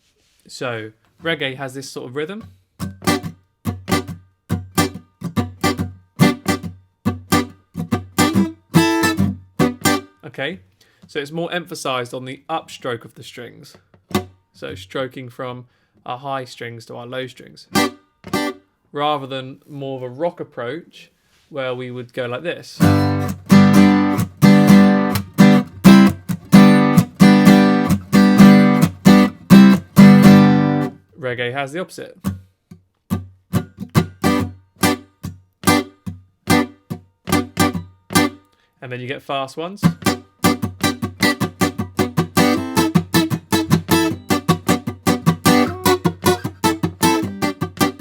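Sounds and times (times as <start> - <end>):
guitar strummed in reggae rhythm: 2.8 - 10.2, 14.0 - 14.5, 17.7 - 18.7, 22.8 - 31.0, 32.2 - 38.7, 39.8 - 48.0.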